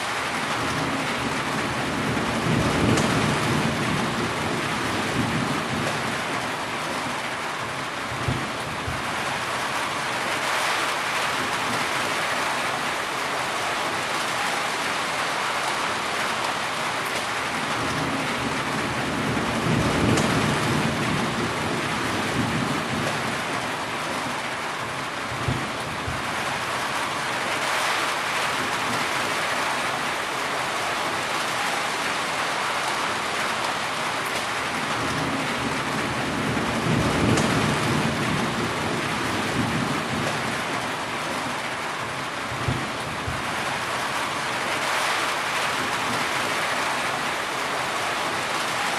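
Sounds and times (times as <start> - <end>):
heavy rain: 0.0 - 48.9
low thunder rumbling: 0.6 - 6.4, 17.7 - 24.2, 34.8 - 40.8, 42.1 - 43.8.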